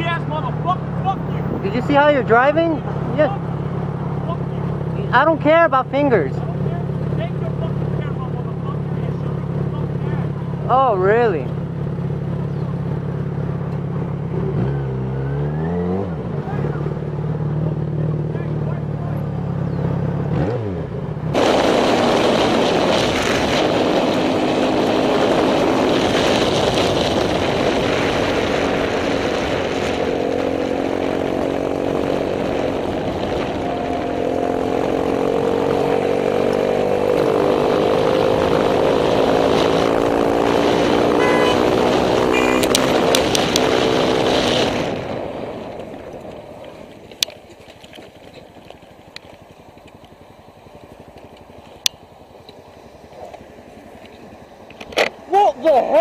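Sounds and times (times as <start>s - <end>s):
motorcycle engine accelerating: 0.0s - 56.0s
wind noise: 21.3s - 49.3s.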